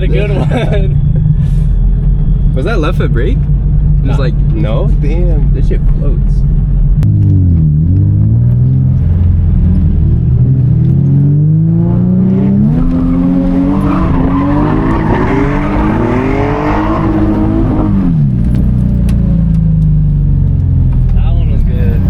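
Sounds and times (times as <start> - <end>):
car engine revving hard: 7.2 - 18.6
tyres screeching: 12.4 - 18.2.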